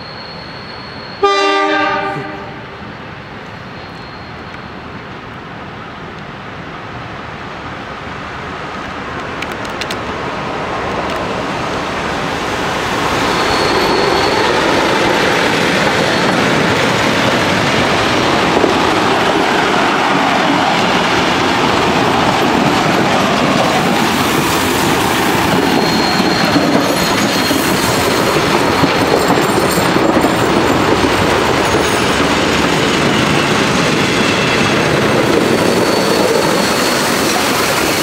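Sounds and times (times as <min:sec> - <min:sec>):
high squeal: 0:00.0 - 0:01.3, 0:02.3 - 0:05.0, 0:12.3 - 0:20.0, 0:23.3 - 0:38.0
train rumble and wheel clatter: 0:00.0 - 0:38.0.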